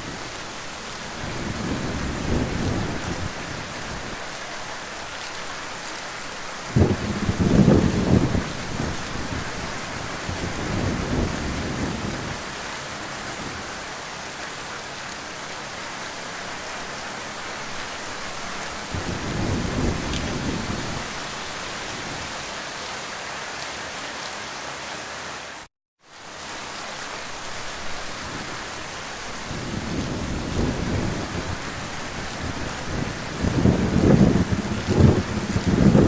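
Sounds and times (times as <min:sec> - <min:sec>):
heavy rain falling: 0:00.0 - 0:36.0
low thunder rolls: 0:01.1 - 0:04.2, 0:06.7 - 0:12.6, 0:18.9 - 0:21.2, 0:29.4 - 0:36.0.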